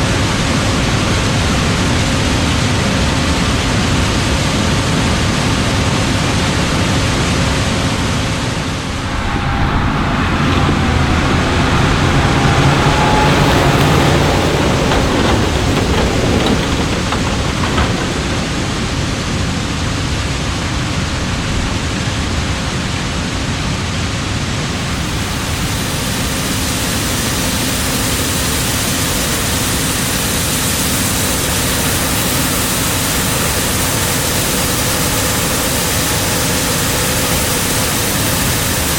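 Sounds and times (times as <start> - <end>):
combine harvester engine and machinery: 8.5 - 38.9.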